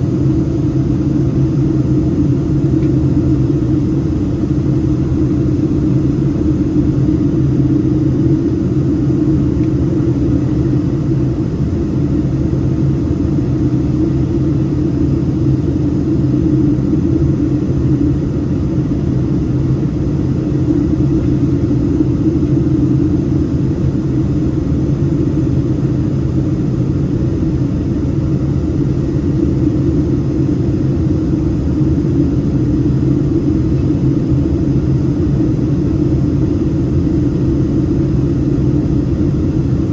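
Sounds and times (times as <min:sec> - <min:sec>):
constant low hum: 0:00.0 - 0:39.9
jet engines rumbling: 0:00.0 - 0:39.9.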